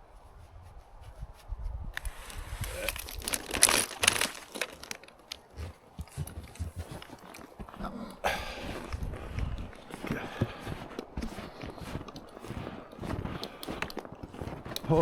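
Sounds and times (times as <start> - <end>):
footsteps crunching on snow: 0.0 - 15.0.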